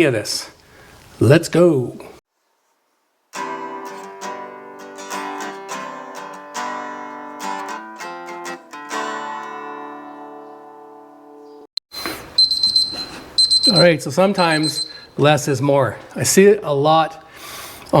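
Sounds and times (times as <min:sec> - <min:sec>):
acoustic guitar chords: 0:03.4 - 0:11.5.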